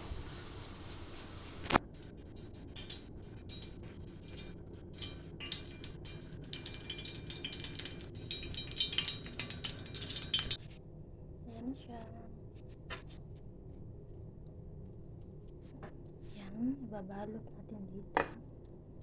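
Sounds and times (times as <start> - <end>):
utensils clinking on dishes: 1.9 - 10.6.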